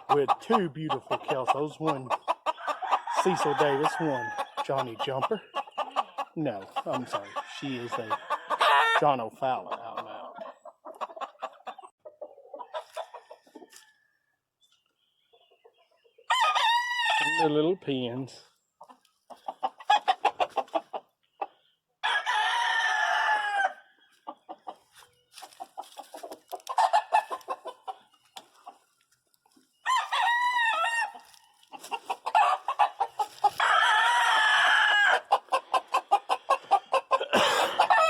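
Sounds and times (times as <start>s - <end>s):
roosters crowing: 0.0s - 9.2s, 16.3s - 17.6s, 22.0s - 23.9s, 29.8s - 38.0s
hens clucking: 0.0s - 13.9s, 15.0s - 38.0s.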